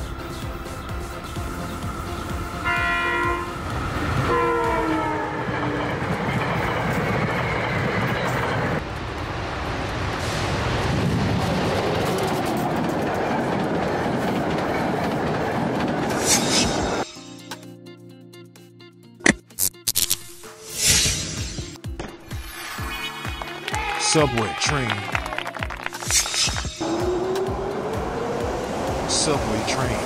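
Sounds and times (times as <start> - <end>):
train rumbling on tracks: 0.0 - 17.1, 25.2 - 30.0
train horn blasts: 2.6 - 5.6.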